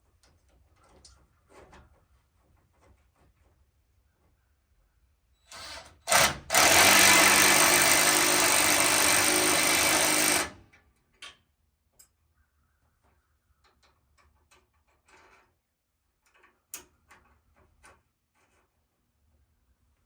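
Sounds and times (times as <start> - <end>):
power tool running: 5.5 - 10.6.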